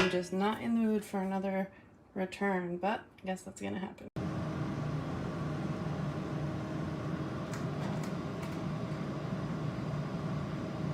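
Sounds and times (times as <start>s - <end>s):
mechanical hum: 4.2s - 10.9s.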